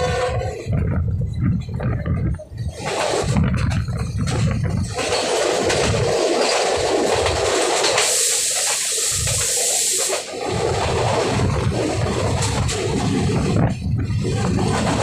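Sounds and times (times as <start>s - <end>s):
train passing at speed: 0.0s - 15.0s
sharp high hiss: 8.0s - 10.3s.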